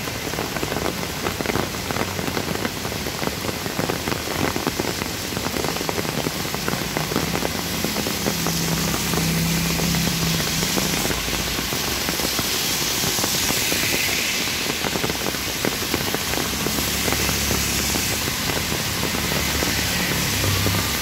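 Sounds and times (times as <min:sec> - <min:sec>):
heavy rain on road: 0:00.0 - 0:21.0
vehicles driving through water: 0:00.0 - 0:21.0.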